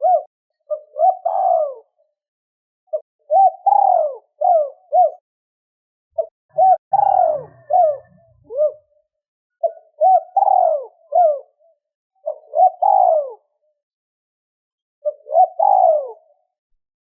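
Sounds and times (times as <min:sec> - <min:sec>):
dove cooing: 0:00.0 - 0:02.1, 0:02.9 - 0:05.2, 0:06.2 - 0:13.6, 0:15.0 - 0:16.5.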